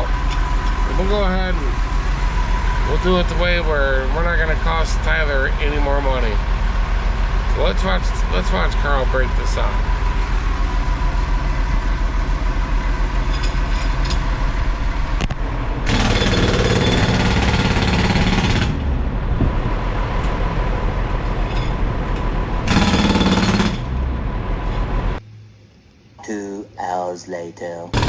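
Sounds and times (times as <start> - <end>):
jackhammer breaking concrete: 15.9 - 18.8, 22.7 - 23.9.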